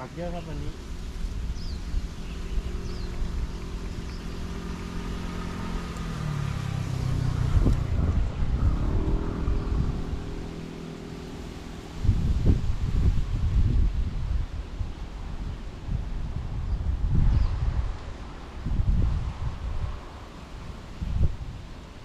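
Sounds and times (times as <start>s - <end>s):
engine running steadily: 0.0s - 18.0s
wind buffeting microphone: 0.0s - 22.0s.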